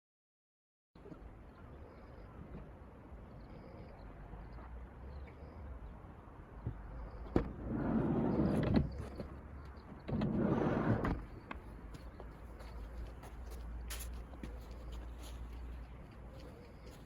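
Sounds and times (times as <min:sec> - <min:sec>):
sliding door rolling on track: 0:07.6 - 0:09.1, 0:10.0 - 0:11.2.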